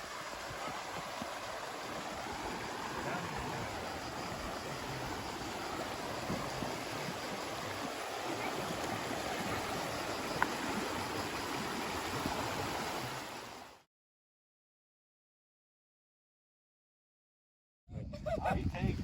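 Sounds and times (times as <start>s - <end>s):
steady rushing outdoor noise: 0.0s - 13.6s.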